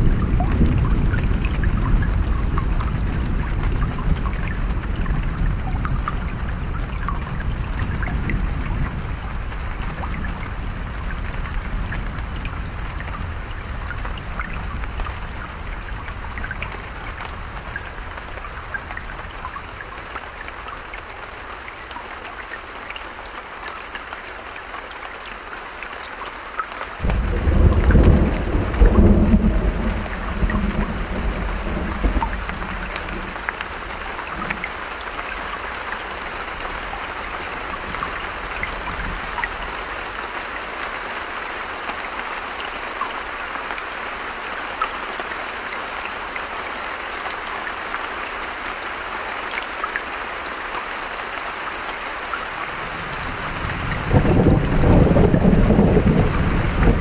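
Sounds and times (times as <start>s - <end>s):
steady rain falling: 0.0s - 57.0s
loud thunderclap: 27.0s - 33.4s, 53.6s - 57.0s
thunder rumbling: 27.0s - 34.5s, 53.0s - 57.0s.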